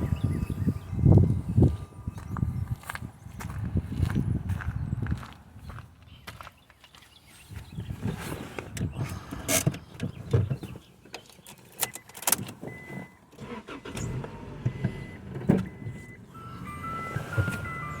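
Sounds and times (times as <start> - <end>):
car warning chime beeps: 0.0 - 2.6, 11.8 - 18.0
clicks and thumps in a car: 7.6 - 13.2, 14.6 - 16.2.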